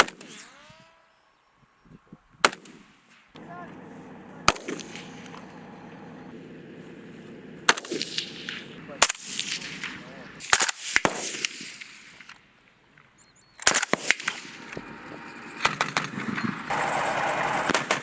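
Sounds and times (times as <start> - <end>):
gunshots: 0.0 - 0.8, 2.4 - 12.4, 13.6 - 18.0
steady mechanical hum: 3.4 - 10.4.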